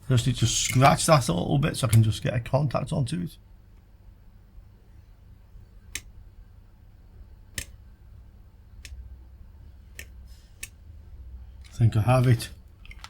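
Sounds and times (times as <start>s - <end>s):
faint low hum: 0.0s - 13.0s
sharp clicks: 5.9s - 6.2s, 7.5s - 7.8s.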